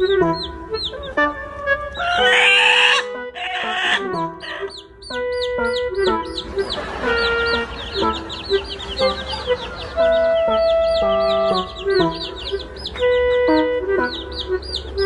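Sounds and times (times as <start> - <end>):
background music with held notes: 0.0 - 15.0
chicks peeping: 0.0 - 15.0.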